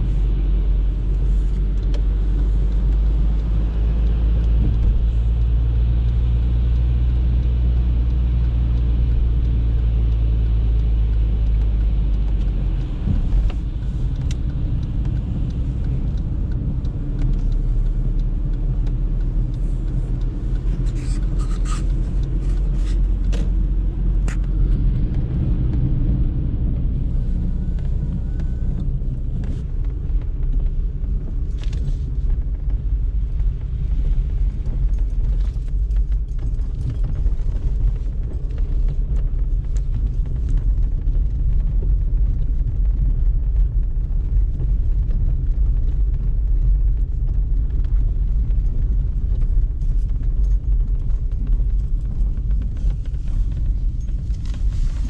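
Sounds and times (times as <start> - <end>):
car driving rumble: 0.0 - 55.0
faint ticks: 1.7 - 25.1.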